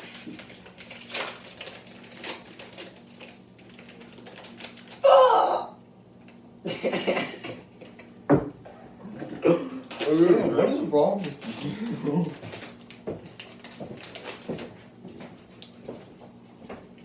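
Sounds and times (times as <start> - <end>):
snack packaging crackling: 0.0 - 5.1, 11.2 - 14.8.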